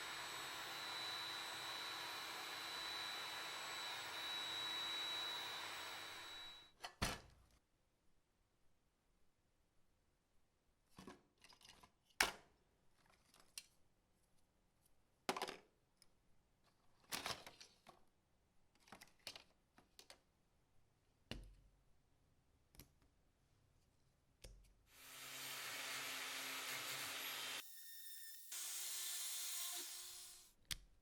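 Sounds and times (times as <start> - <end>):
power tool running: 0.0 - 6.6, 25.0 - 30.5.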